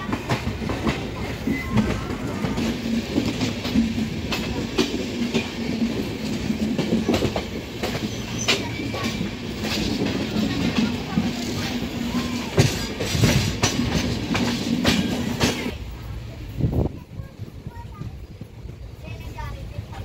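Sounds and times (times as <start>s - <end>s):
wheels clacking over rail joints: 0.0s - 15.8s
another train passing close: 0.0s - 20.0s
train wheels rumbling on rails: 0.0s - 20.0s.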